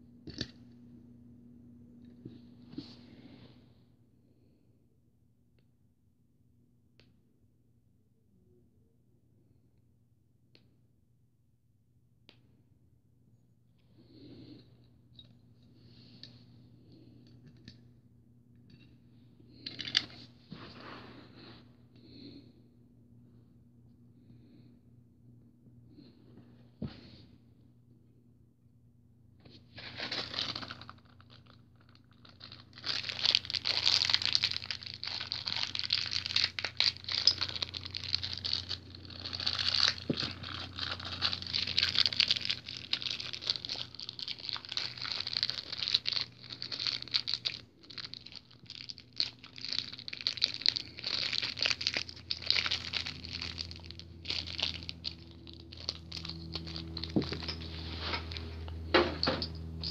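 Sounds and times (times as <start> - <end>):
packaging tearing: 29.8 - 58.5
packaging crinkling: 29.8 - 58.8.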